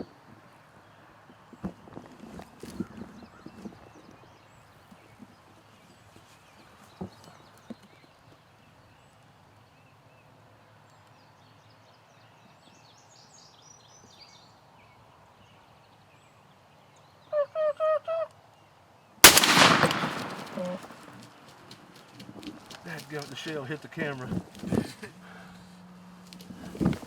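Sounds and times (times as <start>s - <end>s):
faint songbirds calling: 0.0s - 21.4s
turkey yelps: 17.3s - 18.3s
loud shotgun blast: 19.2s - 21.3s.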